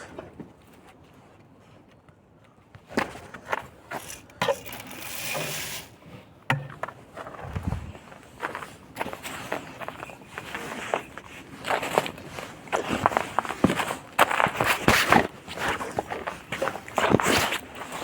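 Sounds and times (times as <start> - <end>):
footsteps: 7.2 - 15.0.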